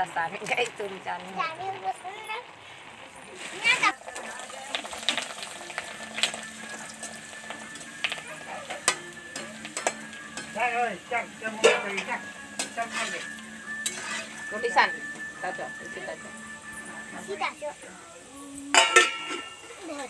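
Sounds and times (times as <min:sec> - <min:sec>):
snacks sizzling in oil: 0:00.0 - 0:20.0
metal ladle clicking against pan: 0:08.0 - 0:10.6.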